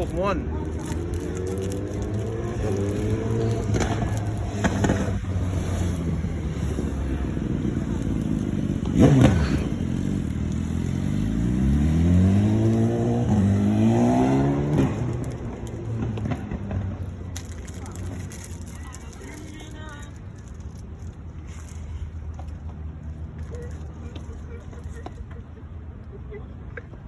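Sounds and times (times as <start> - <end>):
engine accelerating and shifting gear: 0.0 - 19.5
car traffic passing: 0.0 - 27.0.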